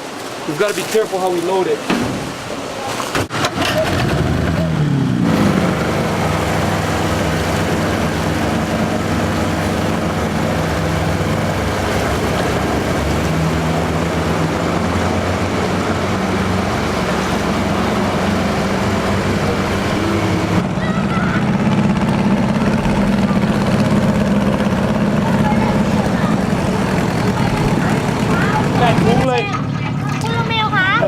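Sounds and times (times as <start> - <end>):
small boat motor running: 3.3 - 31.0.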